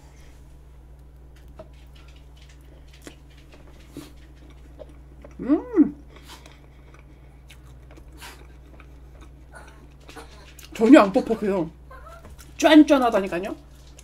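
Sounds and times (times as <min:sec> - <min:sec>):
soft chewing clicks: 0:00.9 - 0:05.4, 0:06.0 - 0:12.6.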